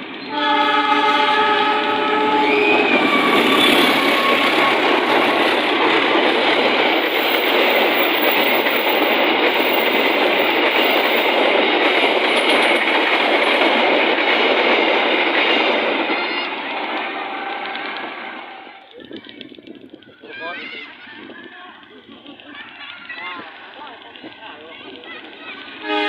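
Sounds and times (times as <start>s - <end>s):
train wheels rushing on rails: 0.0s - 26.0s
train horn blast: 0.2s - 4.3s, 17.0s - 18.8s, 25.8s - 26.0s
clickety-clack over rail joints: 2.6s - 26.0s.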